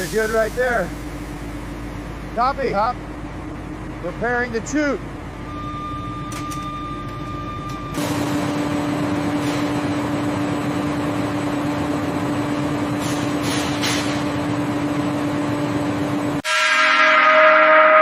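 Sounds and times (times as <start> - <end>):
mechanical hum: 0.0 - 16.7
ringing gong-like tone: 16.4 - 18.0.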